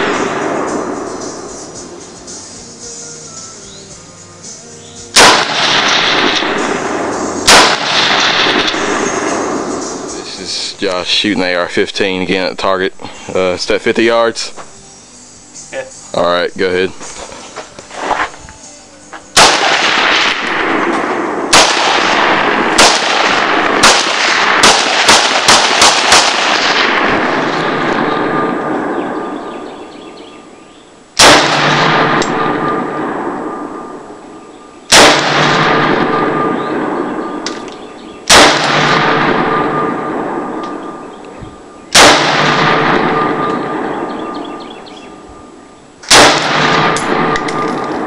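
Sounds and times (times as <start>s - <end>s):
rifle shots with echo: 0.0s - 1.8s, 5.1s - 11.4s, 19.3s - 30.5s, 31.2s - 48.0s.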